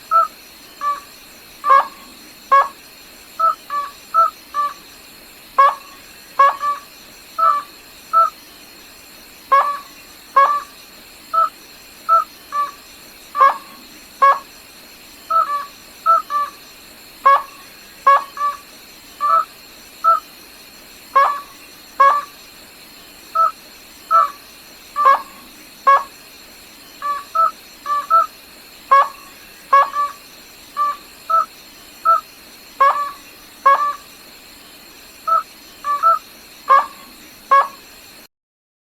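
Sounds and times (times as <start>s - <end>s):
bird hooting calls: 35.3s - 37.8s.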